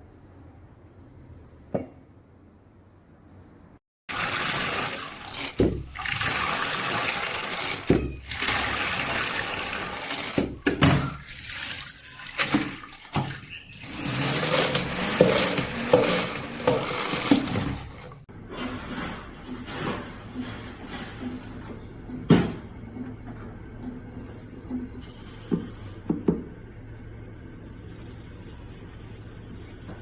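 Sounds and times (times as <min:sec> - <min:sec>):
water gushing into bucket: 0:04.1 - 0:18.2.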